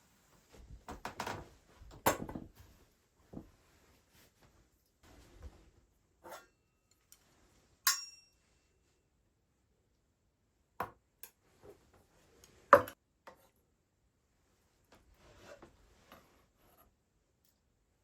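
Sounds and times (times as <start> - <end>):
metallic ping: 7.9 - 8.4.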